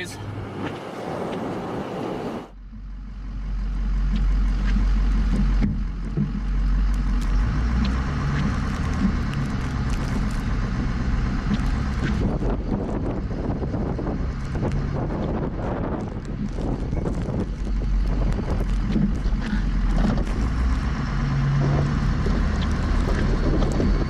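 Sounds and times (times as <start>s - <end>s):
road noise: 0.0s - 24.0s
truck engine rumble: 0.0s - 24.0s.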